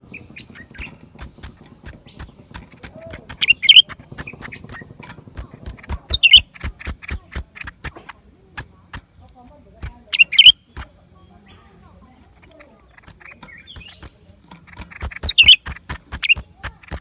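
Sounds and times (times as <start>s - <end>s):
bird sharp chirps: 0.0s - 9.1s, 9.9s - 17.0s
bird clicking notes: 0.0s - 11.2s, 12.2s - 17.0s.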